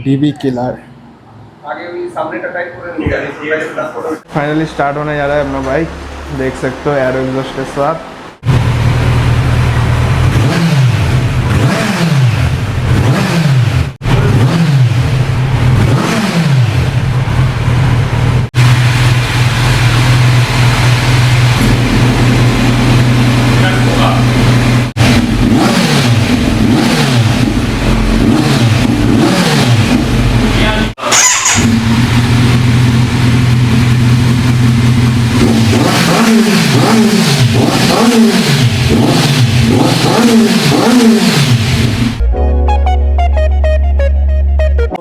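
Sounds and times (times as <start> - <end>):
motorcycle engine idling and blipping: 8.5 - 30.9, 31.6 - 42.0.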